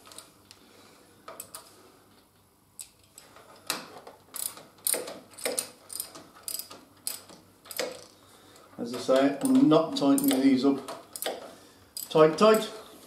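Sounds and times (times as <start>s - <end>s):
socket ratchet clicking: 4.3s - 8.1s, 10.2s - 11.4s.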